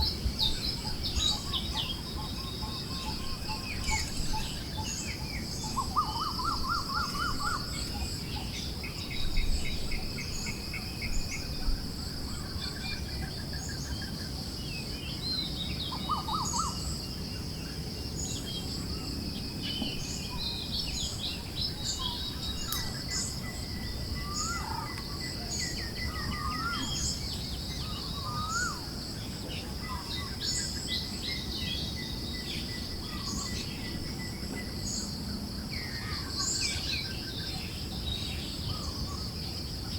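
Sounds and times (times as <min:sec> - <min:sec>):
birds chirping and warbling: 0:00.0 - 0:39.9.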